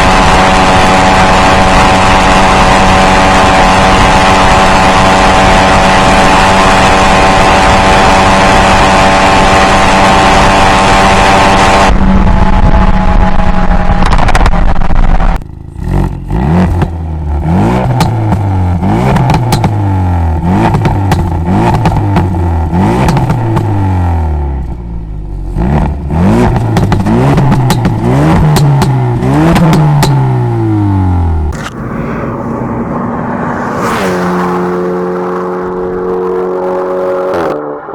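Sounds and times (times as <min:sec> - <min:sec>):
loud steady rush: 0:00.0 - 0:15.4, 0:29.8 - 0:37.9
car engine revving: 0:00.0 - 0:37.9
exhaust pops and crackles: 0:11.9 - 0:17.1, 0:17.8 - 0:19.9, 0:20.6 - 0:22.4, 0:25.8 - 0:30.4.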